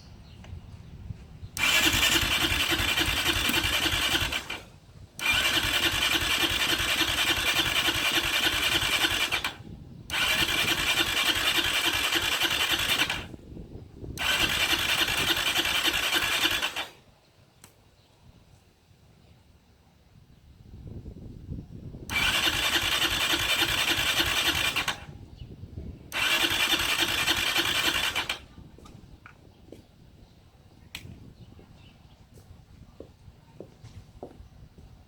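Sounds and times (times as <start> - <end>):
engine cranking on starter: 1.6 - 13.4, 14.1 - 17.0, 22.1 - 25.2, 26.1 - 28.6.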